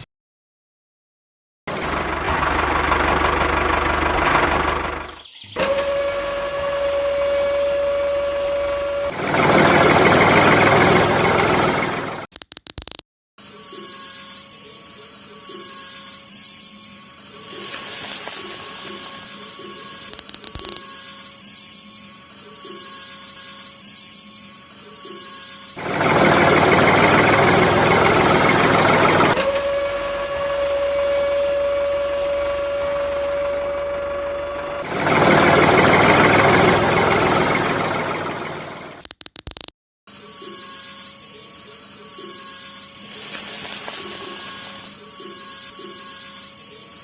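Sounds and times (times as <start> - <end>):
small electric motor running: 5.6 - 9.3, 13.4 - 36.5, 40.1 - 47.0.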